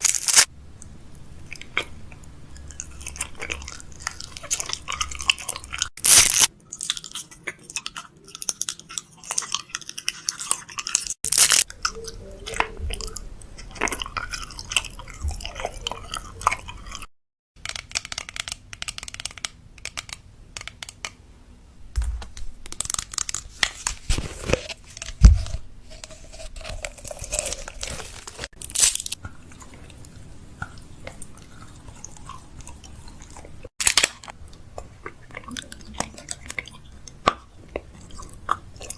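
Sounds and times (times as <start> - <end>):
plastic wrappers crinkling: 0.0 - 0.5, 10.9 - 11.7, 22.6 - 25.3, 25.9 - 29.2.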